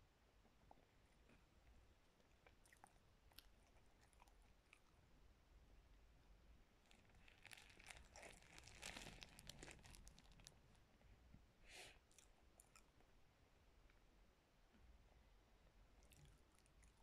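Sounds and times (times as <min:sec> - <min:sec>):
crunchy chewing: 0:02.2 - 0:05.0, 0:06.8 - 0:10.6, 0:16.0 - 0:17.0.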